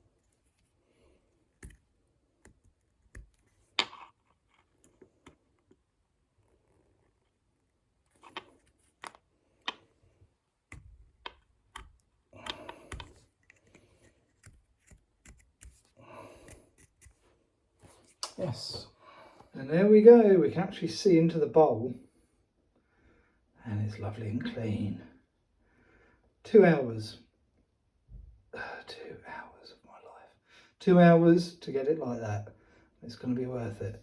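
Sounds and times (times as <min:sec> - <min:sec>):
small objects clicking and tapping: 0:02.4 - 0:05.8, 0:10.7 - 0:17.2.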